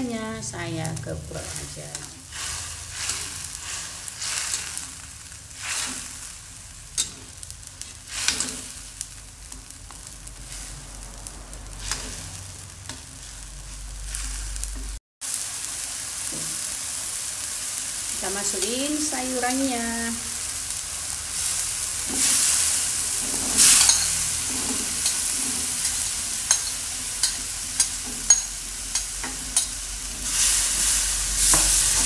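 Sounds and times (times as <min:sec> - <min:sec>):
spice paste sizzling in oil: 0:00.0 - 0:32.0
spatula scraping a wok: 0:01.5 - 0:09.0, 0:10.4 - 0:14.7, 0:21.4 - 0:32.0.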